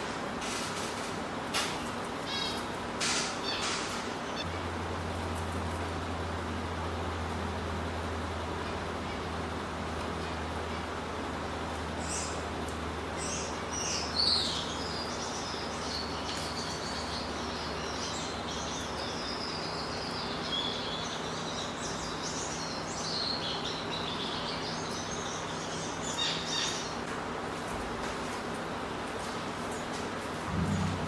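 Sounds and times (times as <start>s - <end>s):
small birds chirping: 1.8s - 5.8s, 8.3s - 31.0s
low hum: 30.4s - 31.0s.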